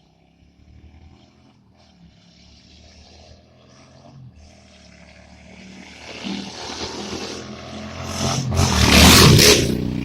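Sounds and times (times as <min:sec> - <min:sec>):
faint motorcycle engine running: 0:00.0 - 0:06.7.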